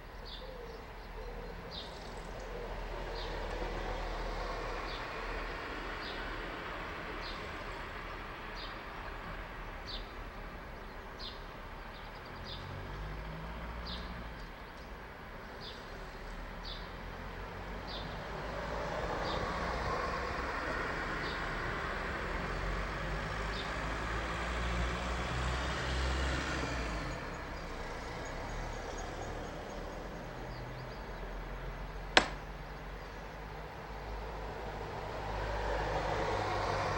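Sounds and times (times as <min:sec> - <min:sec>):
distant road traffic hum: 0:00.0 - 0:36.9
sharp click: 0:32.2 - 0:32.6.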